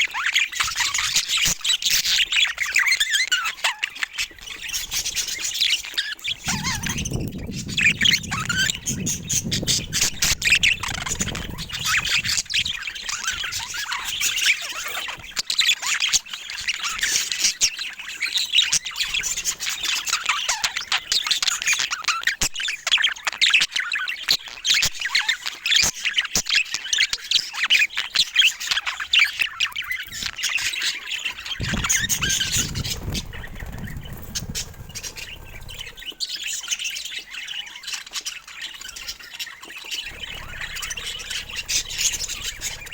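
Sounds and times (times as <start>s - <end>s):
budgerigars chattering and squawking: 0.1s - 22.0s, 31.6s - 42.9s
low rumble: 6.5s - 12.6s, 31.6s - 36.1s, 40.1s - 42.9s.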